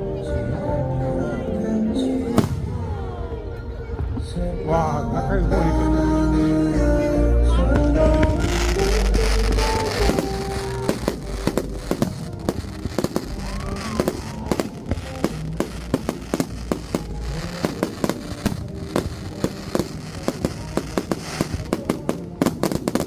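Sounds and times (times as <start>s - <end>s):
faint music: 0.0s - 23.0s
fireworks bangs and crackles: 2.3s - 4.3s, 7.7s - 23.0s.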